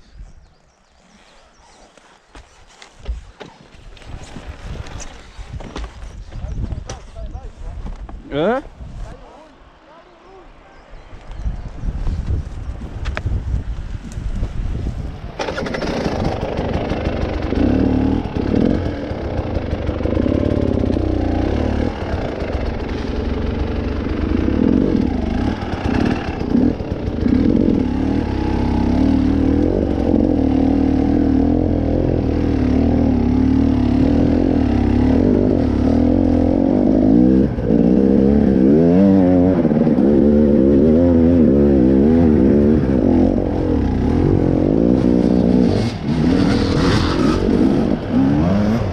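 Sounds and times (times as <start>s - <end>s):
vehicle engine revving: 15.4s - 48.9s.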